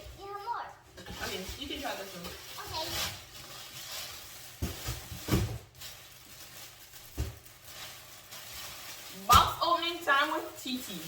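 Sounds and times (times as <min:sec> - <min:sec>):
packaging knocks and rustles: 0:01.0 - 0:09.6.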